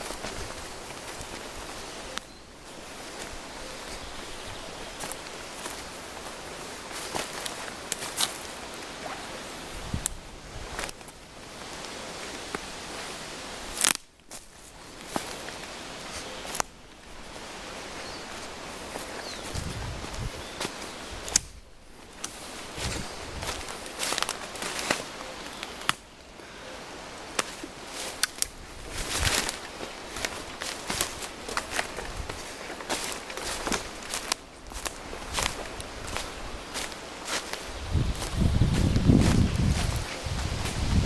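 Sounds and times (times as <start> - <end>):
twigs crunching and snapping: 0.0 - 9.3, 9.9 - 17.3, 18.2 - 26.2, 27.2 - 41.0
footsteps on forest floor: 0.0 - 26.1, 27.1 - 41.0
outdoor hiss: 0.0 - 41.0
sticks snapping: 13.7 - 14.5, 21.2 - 21.6, 22.2 - 22.4, 23.4 - 26.0, 27.3 - 37.6.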